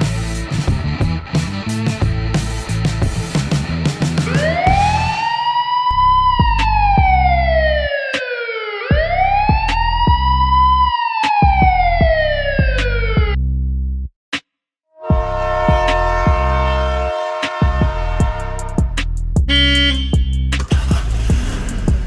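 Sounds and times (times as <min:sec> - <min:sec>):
music with bass beat: 0:00.0 - 0:07.9, 0:08.9 - 0:14.1, 0:15.1 - 0:22.0
police siren wailing: 0:04.3 - 0:12.9.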